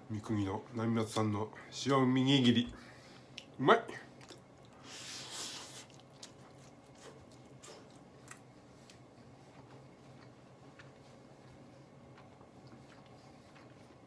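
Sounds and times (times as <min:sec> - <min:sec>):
person chewing: 0:04.2 - 0:14.0.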